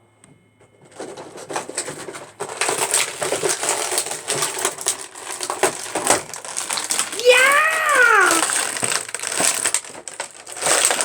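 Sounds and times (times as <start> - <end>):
plastic packaging crinkling: 2.4 - 11.0
plastic pieces clicking: 2.4 - 11.0.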